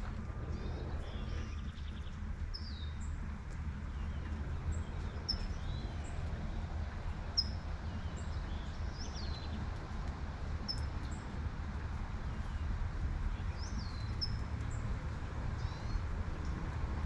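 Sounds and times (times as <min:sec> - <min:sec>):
distant traffic rumble: 0:00.0 - 0:17.0
light rain falling: 0:00.0 - 0:17.0
small songbird chirping: 0:00.5 - 0:03.2, 0:03.9 - 0:06.6, 0:07.2 - 0:09.6, 0:10.6 - 0:11.2, 0:13.3 - 0:14.9.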